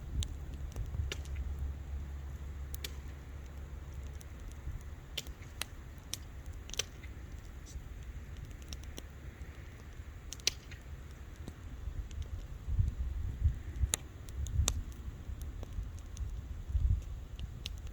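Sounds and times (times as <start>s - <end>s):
low rumble: 0.0s - 5.1s
wood fire crackling: 0.0s - 17.9s.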